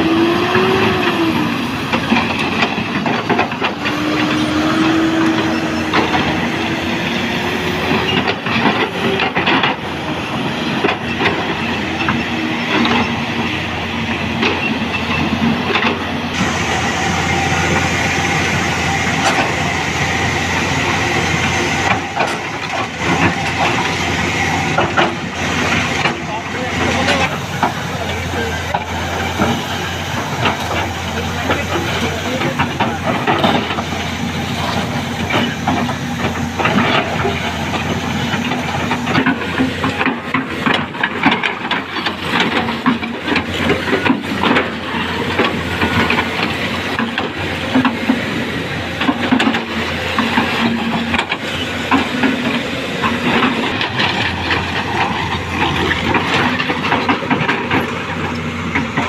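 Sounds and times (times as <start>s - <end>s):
construction machinery engine drone: 0.0s - 59.0s
knocks and rattles: 30.3s - 59.0s.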